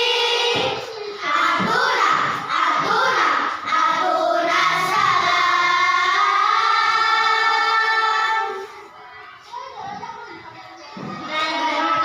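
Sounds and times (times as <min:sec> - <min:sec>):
choir of high voices singing: 0:00.0 - 0:08.7.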